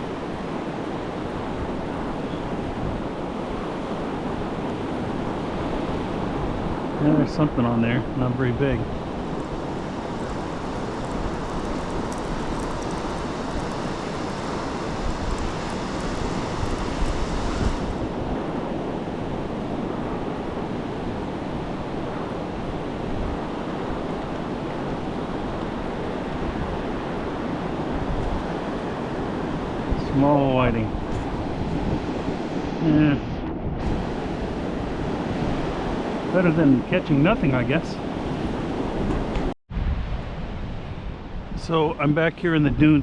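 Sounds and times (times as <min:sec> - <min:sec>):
surf breaking on beach: 0:00.0 - 0:43.0
wind on microphone: 0:00.0 - 0:43.0
high hiss: 0:09.3 - 0:18.2.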